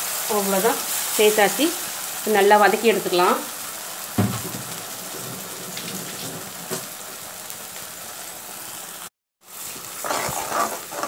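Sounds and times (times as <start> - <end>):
paste sizzling in hot oil: 0.0 - 11.0
knock: 4.2 - 6.9.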